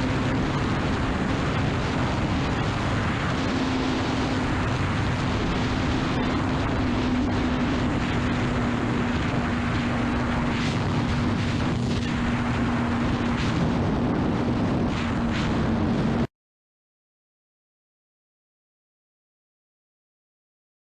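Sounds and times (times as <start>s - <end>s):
motorcycle engine droning: 0.0s - 16.3s
wind rush: 0.0s - 16.3s.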